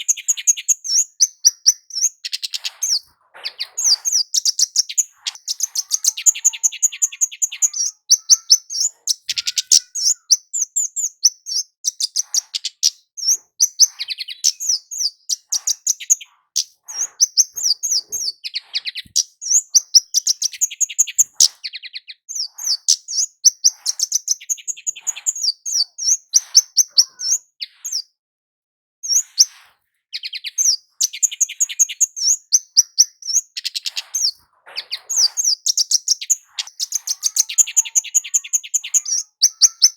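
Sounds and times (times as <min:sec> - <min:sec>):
bird singing high chips: 0:00.0 - 0:28.1, 0:29.0 - 0:39.9.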